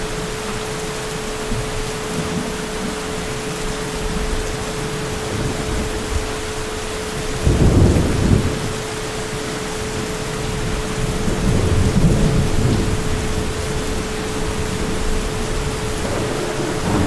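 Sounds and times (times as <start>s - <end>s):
heavy rain falling: 0.0s - 17.0s
thunder rumbling: 3.9s - 17.0s.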